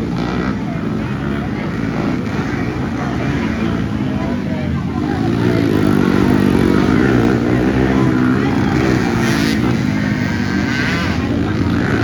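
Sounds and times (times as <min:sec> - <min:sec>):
racing atv engines: 0:00.0 - 0:12.0.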